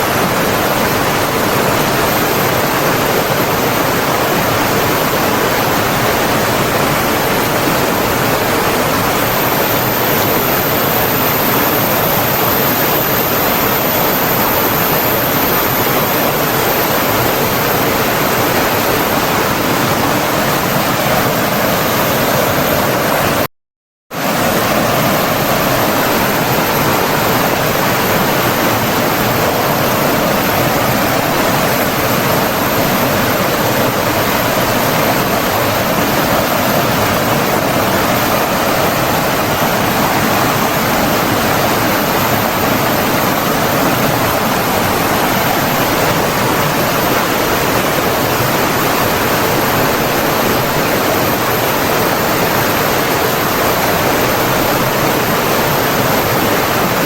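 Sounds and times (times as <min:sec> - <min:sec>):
rushing water: 0:00.0 - 0:23.5, 0:24.2 - 0:57.0.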